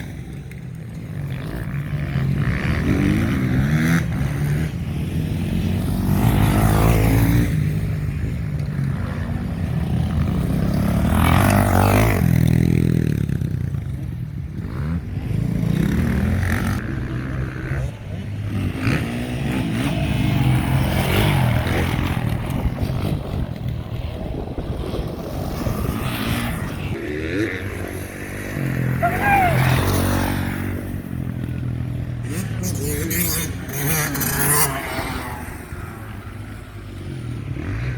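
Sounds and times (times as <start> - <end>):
motocross bikes revving past: 0.0 - 37.9.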